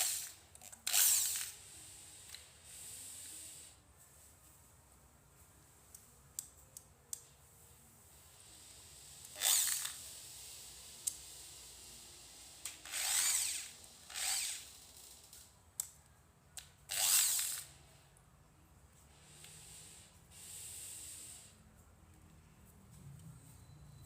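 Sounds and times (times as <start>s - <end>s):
drill trigger clicks: 0.0s - 1.5s, 9.2s - 10.0s, 12.6s - 14.7s, 16.9s - 17.7s
electric drill whirring: 0.0s - 1.6s, 9.2s - 15.4s, 16.9s - 17.8s.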